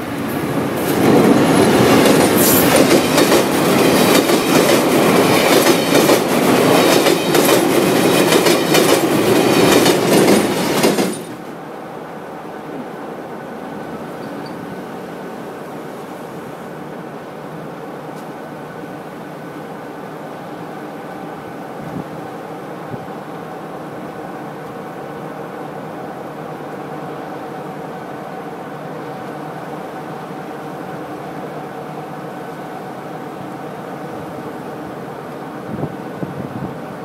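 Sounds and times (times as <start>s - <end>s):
train wheels clickety-clack: 0.2s - 11.5s.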